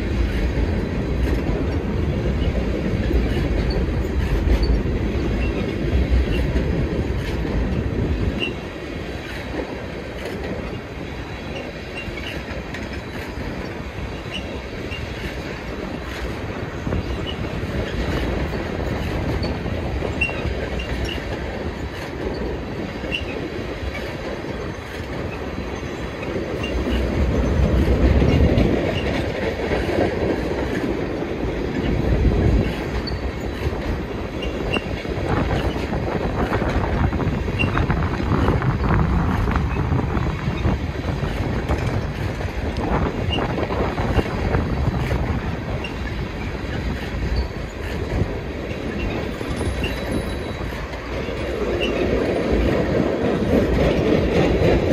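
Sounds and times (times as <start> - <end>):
train wheels rumbling on rail: 0.0 - 54.9
high wheel squeaks: 16.9 - 29.3, 44.8 - 52.8.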